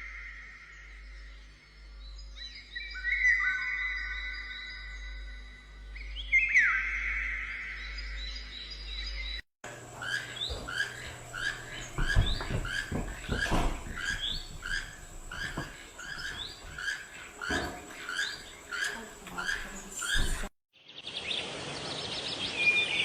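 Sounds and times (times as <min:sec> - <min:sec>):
small bird chirping: 0:00.8 - 0:23.0
soft knocks: 0:09.7 - 0:20.5.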